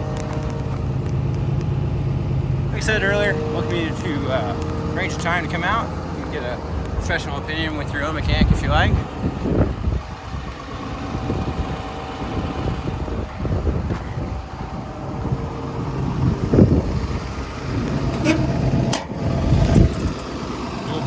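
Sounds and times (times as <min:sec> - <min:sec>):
excavator diesel engine idling: 0:00.0 - 0:21.0
wind buffeting microphone: 0:05.6 - 0:21.0.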